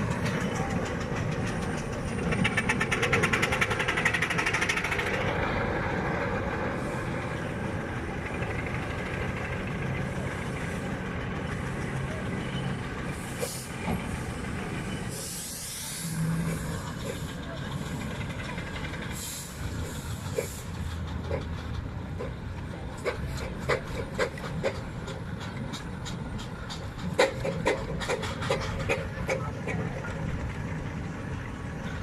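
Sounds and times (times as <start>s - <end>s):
steam engine fast beat: 0.0s - 5.2s, 23.0s - 29.8s.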